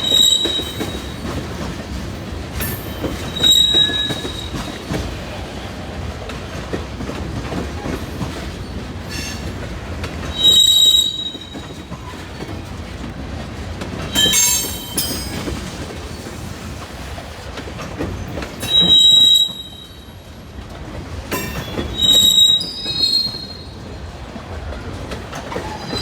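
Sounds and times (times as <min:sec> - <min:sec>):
high-pitched wheel squeals: 0:00.0 - 0:01.2, 0:03.2 - 0:04.8, 0:10.4 - 0:11.7, 0:21.6 - 0:23.7
freight train wheels rumbling: 0:00.0 - 0:26.0.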